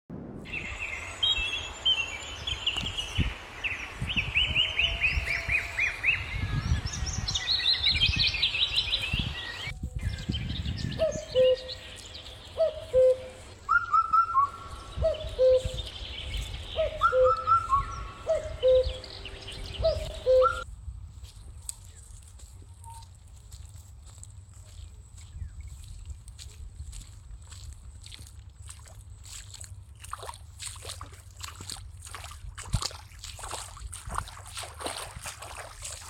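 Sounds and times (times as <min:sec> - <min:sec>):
bird low call: 0:00.5 - 0:20.6
birds trilling chirps: 0:00.5 - 0:20.6.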